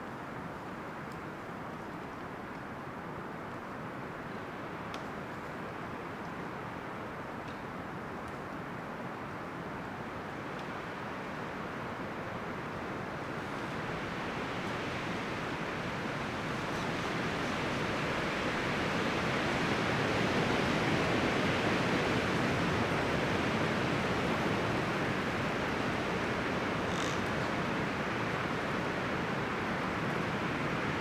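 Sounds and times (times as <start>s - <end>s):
wind rustling tree leaves: 8.7s - 31.0s.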